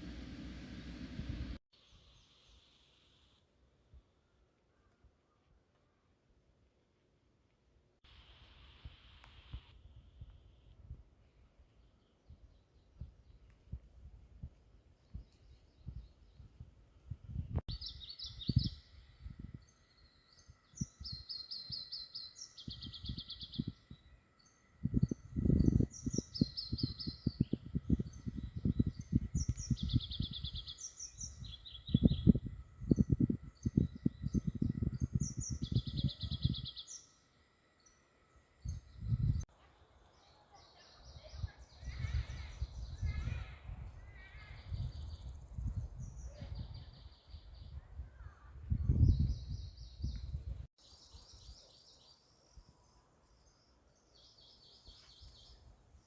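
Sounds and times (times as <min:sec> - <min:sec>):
songbirds trilling: 0:17.7 - 0:39.3.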